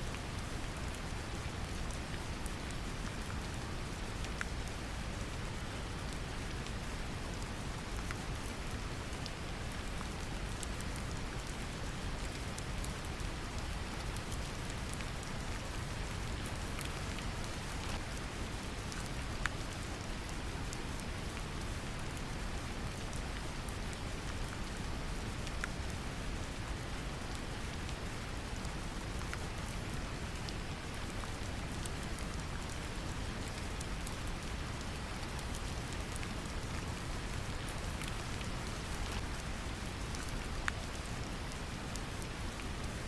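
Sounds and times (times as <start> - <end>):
raindrop ticks: 30.3 - 43.0.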